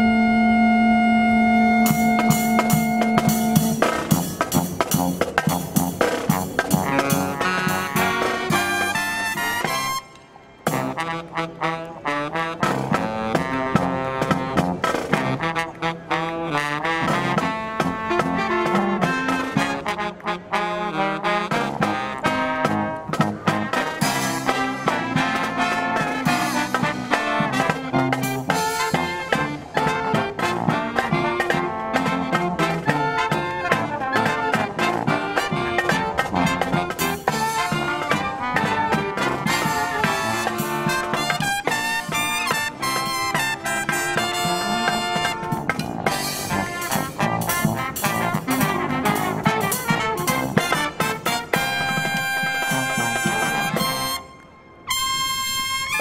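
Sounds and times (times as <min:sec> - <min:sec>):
brass marching band playing: 0:00.0 - 0:56.0.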